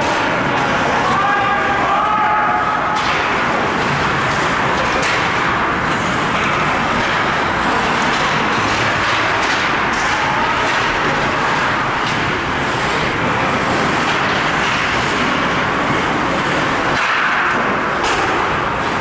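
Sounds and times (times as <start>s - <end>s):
ice hockey rink ambience: 0.0s - 19.0s.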